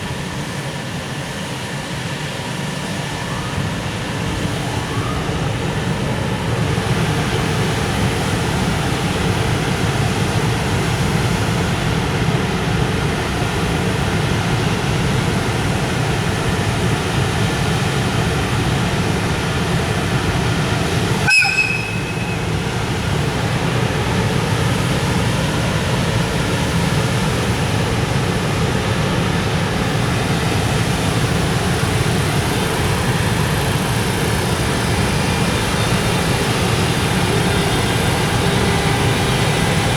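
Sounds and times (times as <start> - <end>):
train wheels rumbling on rails: 0.0 - 39.9
high-pitched squeal: 21.3 - 22.7.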